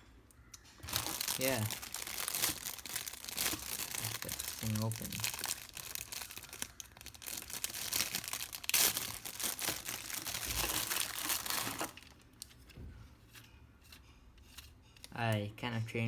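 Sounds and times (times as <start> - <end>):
packaging crinkling and tearing: 0.8 - 12.6.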